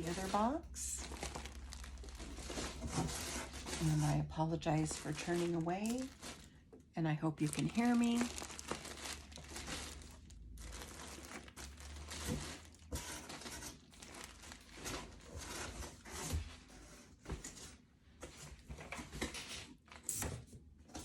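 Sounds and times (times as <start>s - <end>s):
packaging crinkling and tearing: 0.0s - 6.6s, 7.4s - 15.8s.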